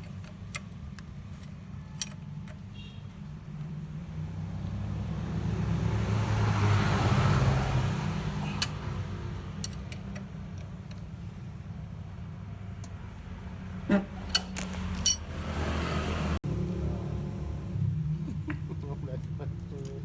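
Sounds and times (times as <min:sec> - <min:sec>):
motor vehicle passing by: 0:03.5 - 0:10.5, 0:11.3 - 0:20.0.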